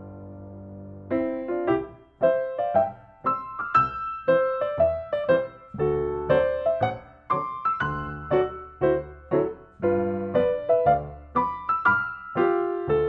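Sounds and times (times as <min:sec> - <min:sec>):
piano melody: 0:00.0 - 0:13.0.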